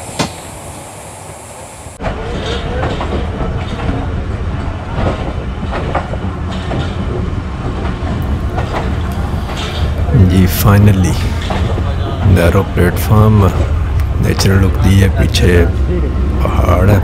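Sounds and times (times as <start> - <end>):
train coaches rumbling: 0.0 - 17.0
wheels clicking over rail joints: 2.0 - 15.1.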